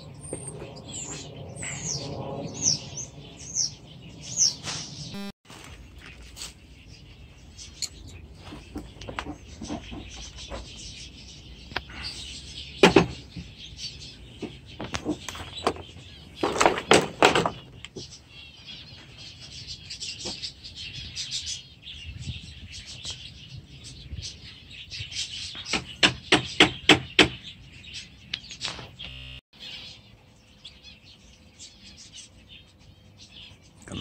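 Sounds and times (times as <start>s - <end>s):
small birds chirping: 0.0s - 34.0s
sharp bird calls: 24.3s - 34.0s.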